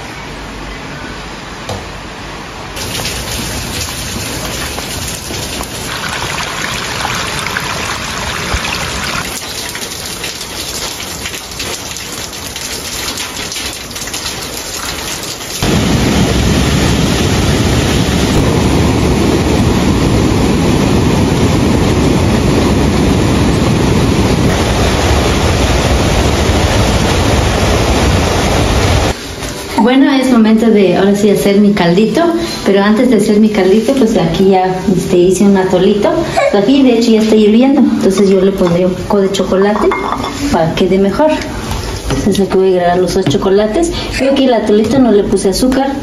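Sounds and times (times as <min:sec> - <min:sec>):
stream rushing in flood: 0:02.8 - 0:12.4
rain falling on puddles: 0:02.8 - 0:29.2.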